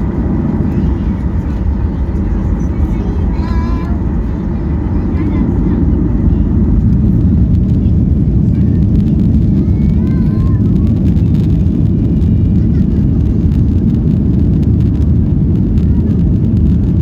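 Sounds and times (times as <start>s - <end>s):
faint voice: 0.0s - 11.1s
airplane cabin engine rumble: 0.0s - 17.0s.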